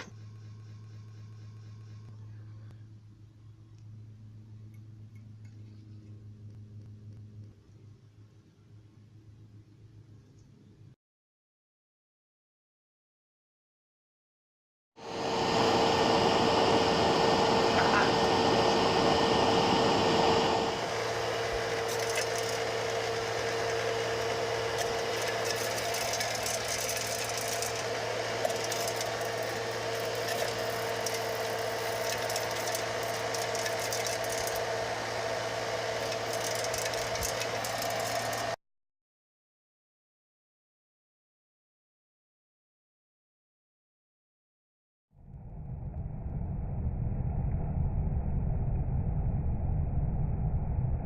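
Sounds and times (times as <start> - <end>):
small electric motor whining: 15.0 - 38.6.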